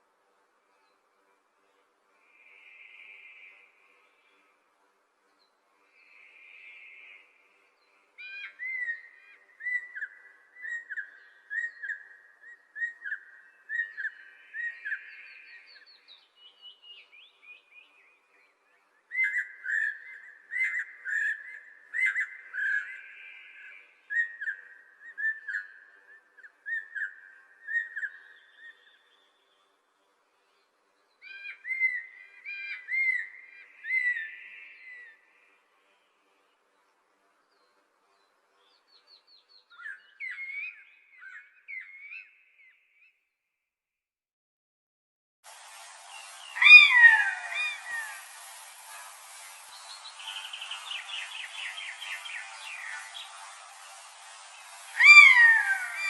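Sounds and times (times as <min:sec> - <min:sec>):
soft hiss: 0:00.0 - 0:39.5, 0:45.5 - 0:56.0
songbird whistling song: 0:08.2 - 0:29.6, 0:30.5 - 0:35.5, 0:37.4 - 0:43.2, 0:46.1 - 0:56.0.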